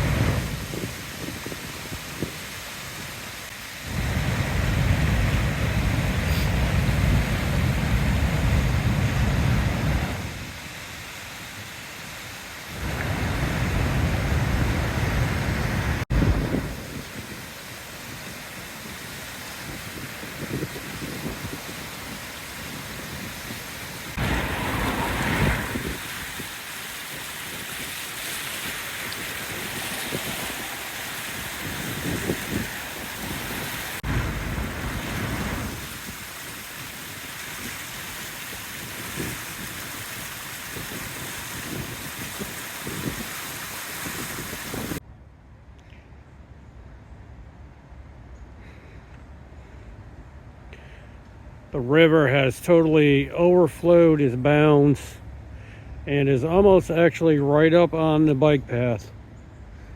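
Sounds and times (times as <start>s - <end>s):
wind buffeting microphone: 0.0s - 2.5s, 12.8s - 19.0s, 19.6s - 45.0s
floodwater rushing in river: 0.0s - 45.0s.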